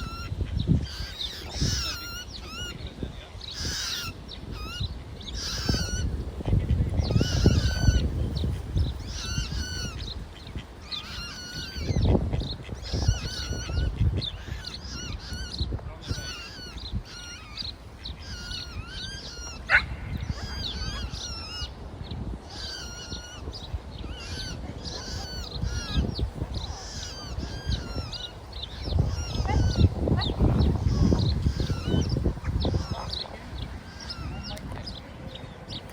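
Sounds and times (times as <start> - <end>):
chicks peeping: 22.9 - 35.0.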